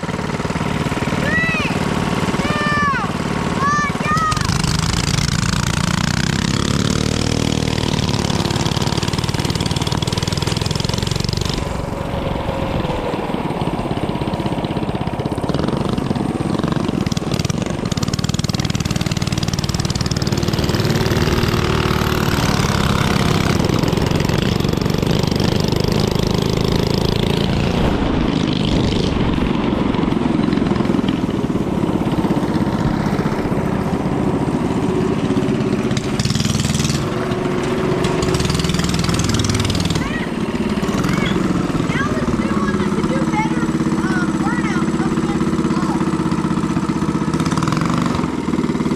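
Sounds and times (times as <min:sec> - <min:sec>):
mini bike engine revving: 0:00.0 - 0:48.9.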